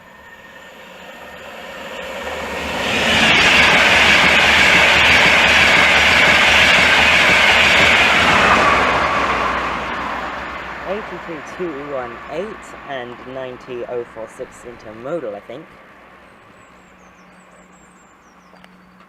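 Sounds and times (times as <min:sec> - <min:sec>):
train passing at speed: 0:00.0 - 0:19.0.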